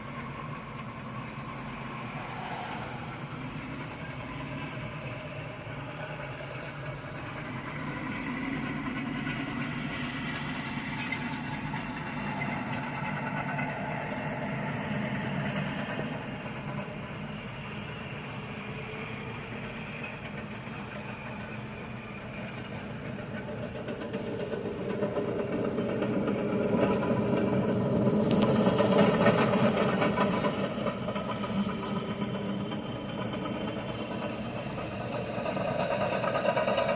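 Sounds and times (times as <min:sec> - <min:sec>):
heavy diesel machinery running: 0:00.0 - 0:36.9.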